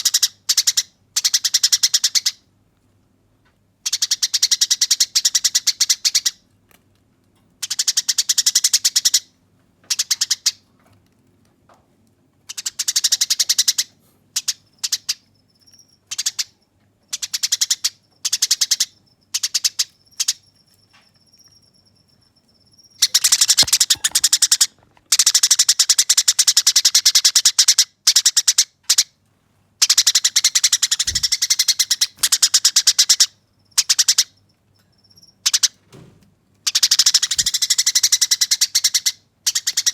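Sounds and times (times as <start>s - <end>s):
sparrow chattering: 12.5s - 15.2s, 16.1s - 20.5s, 22.7s - 24.7s, 29.8s - 34.4s, 36.7s - 39.9s.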